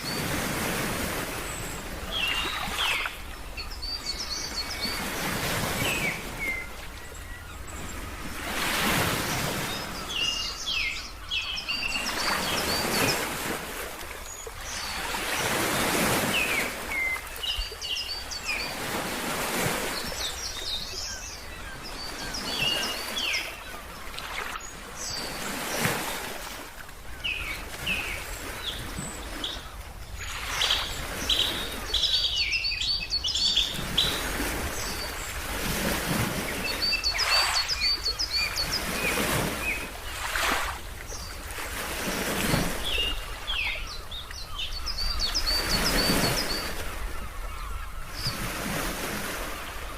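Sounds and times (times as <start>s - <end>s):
ocean waves washing: 0.0s - 49.9s
small birds chirping: 27.1s - 35.4s, 36.4s - 41.4s, 42.4s - 46.8s.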